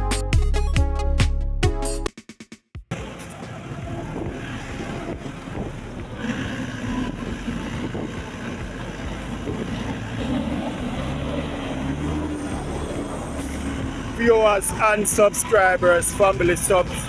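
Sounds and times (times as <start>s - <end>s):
low engine rumble: 3.0s - 17.0s
wind buffeting microphone: 3.8s - 17.0s.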